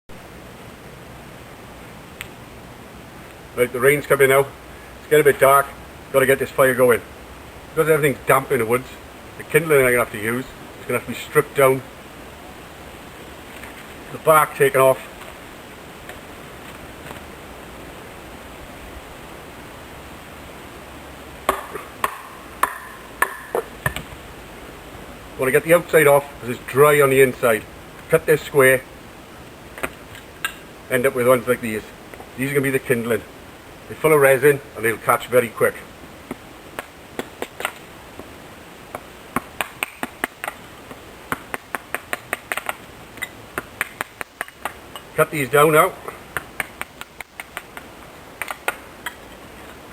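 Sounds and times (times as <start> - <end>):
faint steady hiss: 0.1 - 49.9
sharp ticks and taps: 38.9 - 45.1, 46.4 - 49.2.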